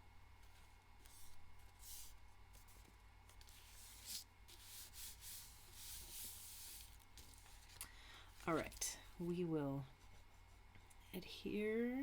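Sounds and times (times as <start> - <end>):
paper rustling: 0.4 - 7.8.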